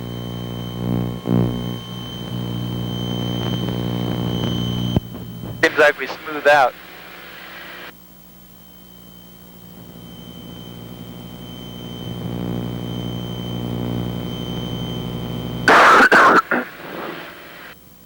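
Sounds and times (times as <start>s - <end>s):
harsh burst of noise: 15.7s - 17.8s.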